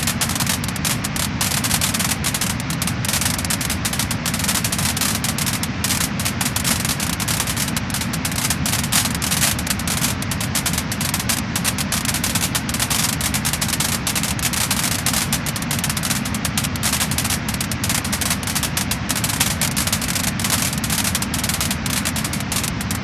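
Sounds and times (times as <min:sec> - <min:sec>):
fire hiss: 0:00.0 - 0:23.0
wood fire crackling and popping: 0:00.0 - 0:23.0.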